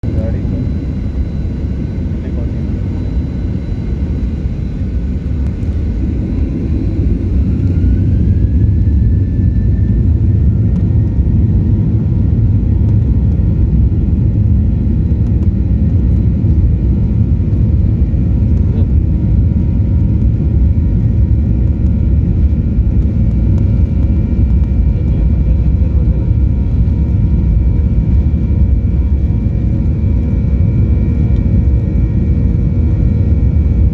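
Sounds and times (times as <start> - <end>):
jet engines spooling up: 0.1 - 11.3.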